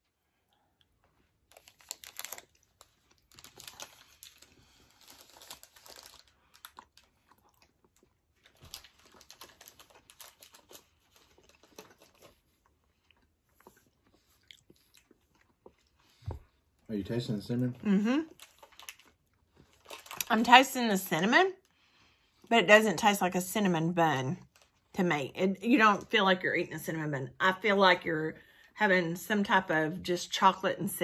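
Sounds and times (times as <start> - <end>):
faint chewing: 0.3 - 16.9, 18.2 - 20.3.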